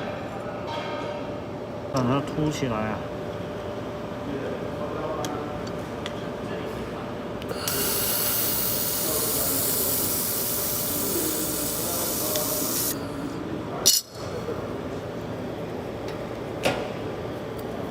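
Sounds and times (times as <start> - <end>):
steady background hum: 0.0 - 17.9
laser welder hissing: 7.5 - 13.4.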